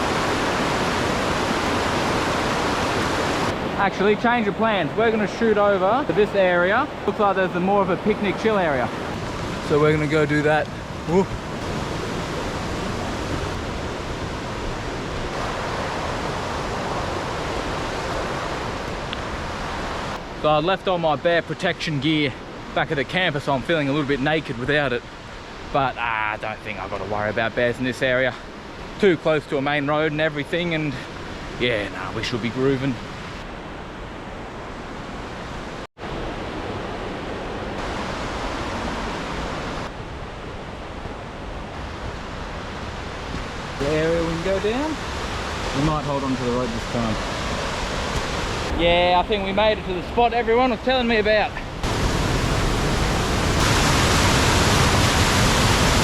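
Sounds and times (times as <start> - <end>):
river water rushing: 0.0 - 20.5, 33.0 - 56.0.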